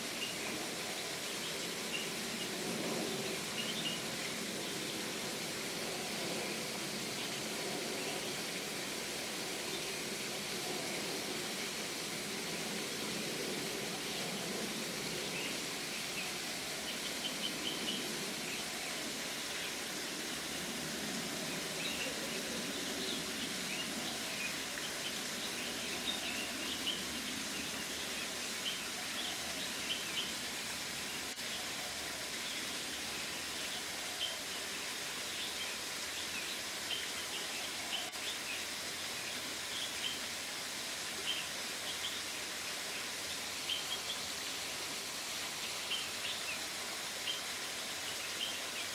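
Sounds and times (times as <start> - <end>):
steady background hiss: 0.0 - 48.9.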